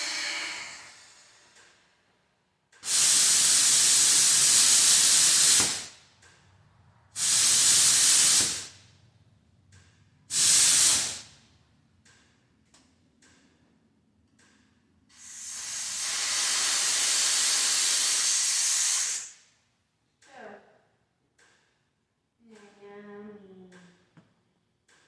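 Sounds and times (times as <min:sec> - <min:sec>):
loud hissing bursts: 0:00.0 - 0:01.5, 0:02.8 - 0:06.0, 0:07.2 - 0:08.7, 0:10.3 - 0:11.3, 0:15.2 - 0:19.4
faint ticks: 0:23.6 - 0:25.0.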